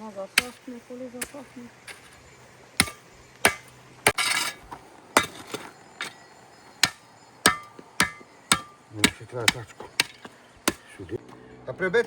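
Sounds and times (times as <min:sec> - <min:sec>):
hammer strikes: 0:02.8 - 0:04.3, 0:06.8 - 0:10.9.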